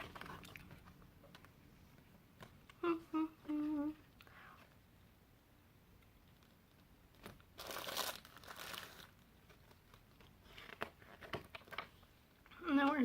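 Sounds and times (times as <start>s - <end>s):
plastic wrapper crinkling: 6.0s - 12.0s.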